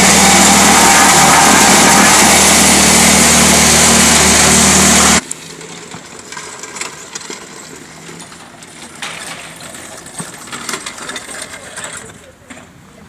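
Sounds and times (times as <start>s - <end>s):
small engine running: 0.0s - 5.8s.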